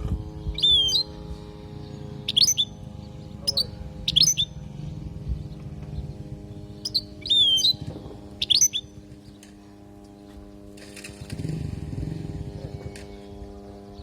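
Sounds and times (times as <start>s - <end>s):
steady low hum: 0.0s - 14.0s
goldfinch twittering chirps: 0.3s - 9.5s.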